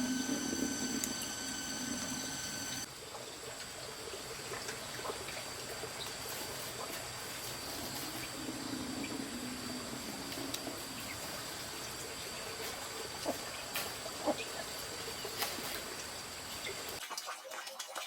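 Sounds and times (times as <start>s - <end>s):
steady high tones: 0.0s - 2.9s.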